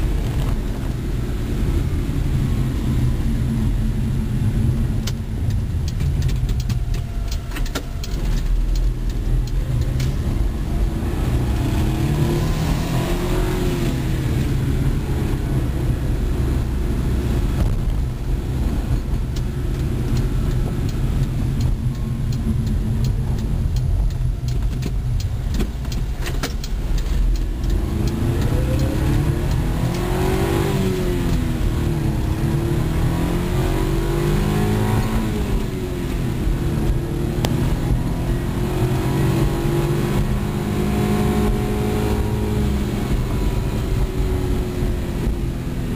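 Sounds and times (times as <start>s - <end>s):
low road rumble: 0.0s - 45.9s.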